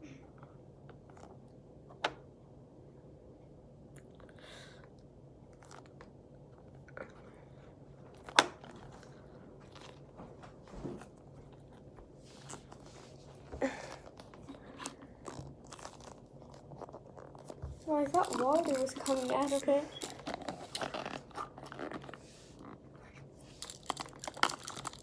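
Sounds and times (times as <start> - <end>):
foam toy squishing: 14.0 - 22.8.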